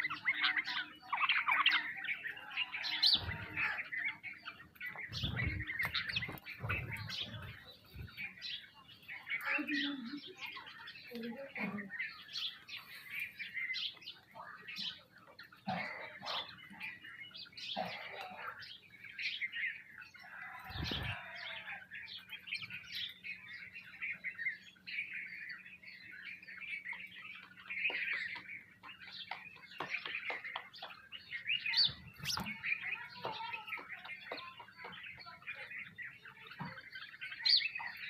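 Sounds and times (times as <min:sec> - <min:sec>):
sparrows chirping: 0:00.0 - 0:38.0.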